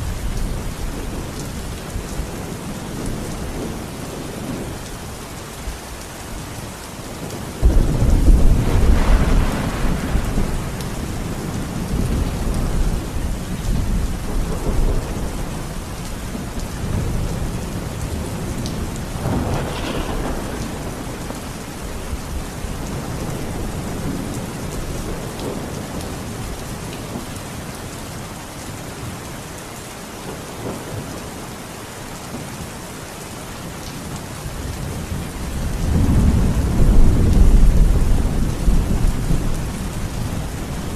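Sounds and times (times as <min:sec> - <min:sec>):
steady rain: 0:00.0 - 0:40.9
rolling thunder: 0:07.2 - 0:26.2, 0:34.7 - 0:40.9.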